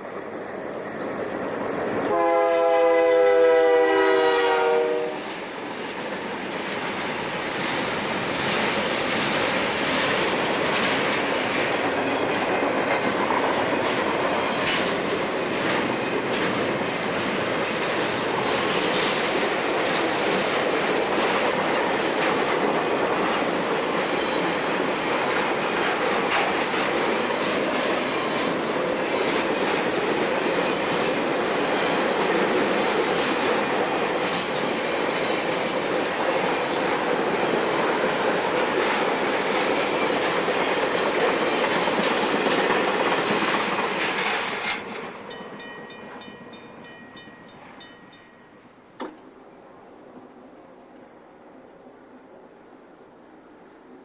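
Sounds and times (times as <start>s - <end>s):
freight train rumbling past: 0.0s - 51.6s
wheels clicking over rail joints: 5.3s - 48.4s.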